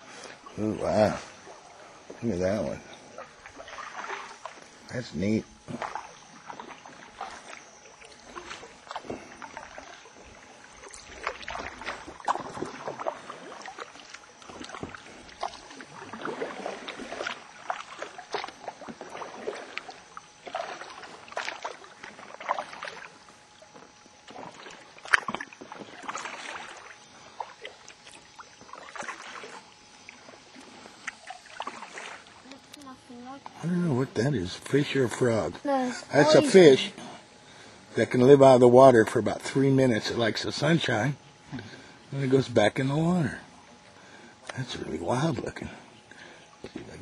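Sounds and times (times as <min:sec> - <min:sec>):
paddle strokes and water splashing: 0:00.0 - 0:47.0.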